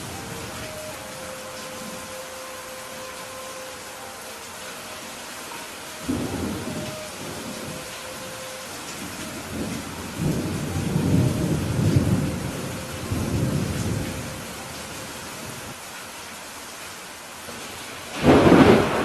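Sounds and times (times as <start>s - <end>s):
steady rain: 0.0s - 19.0s
thunder rumbling: 6.0s - 14.7s, 18.1s - 19.0s.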